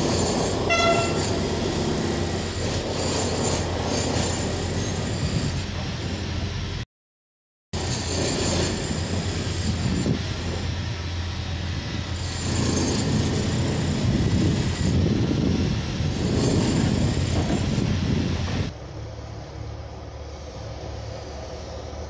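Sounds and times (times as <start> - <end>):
high wheel squeal: 0.0 - 6.3, 7.8 - 10.8, 11.9 - 18.4
train wheels rumbling on rail: 0.0 - 6.8, 7.8 - 22.0.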